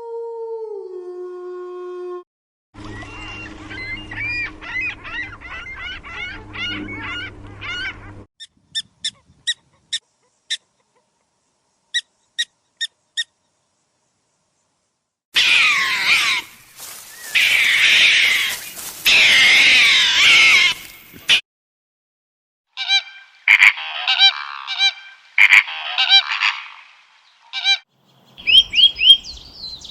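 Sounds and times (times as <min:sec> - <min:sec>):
animal calls: 0:02.8 - 0:11.2, 0:15.4 - 0:21.4, 0:22.8 - 0:26.9.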